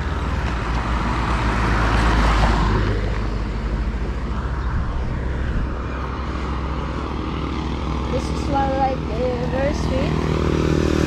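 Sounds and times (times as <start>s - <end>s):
vehicle passing by: 0.0s - 11.0s
steady low rumble: 2.6s - 10.4s.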